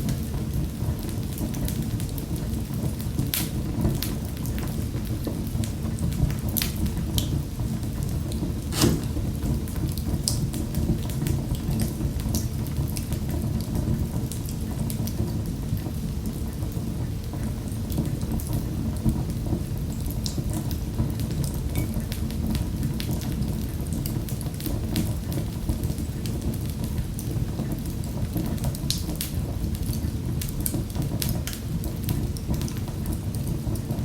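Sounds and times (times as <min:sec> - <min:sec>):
fireplace fire crackling: 0:00.0 - 0:34.0
fire pops and snaps: 0:08.3 - 0:10.5.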